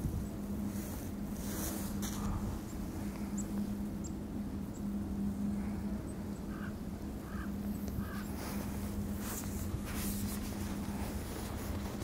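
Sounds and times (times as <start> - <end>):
steady low hum and rumble: 0.0 - 12.0
soft bird calls: 2.0 - 8.8.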